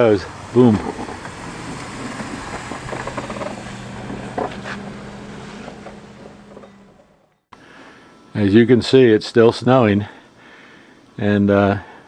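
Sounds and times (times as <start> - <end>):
snowplow engine humming: 0.0 - 7.4.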